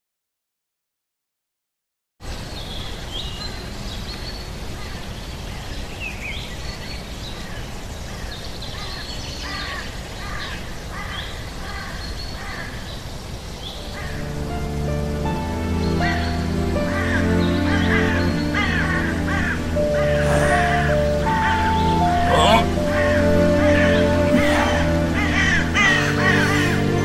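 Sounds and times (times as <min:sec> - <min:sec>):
birds chirping: 0:02.3 - 0:27.0
music: 0:13.8 - 0:27.0.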